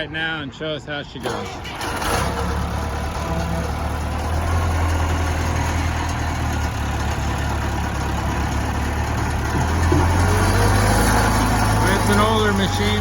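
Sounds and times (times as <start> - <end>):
diesel engine idling: 1.2 - 13.0.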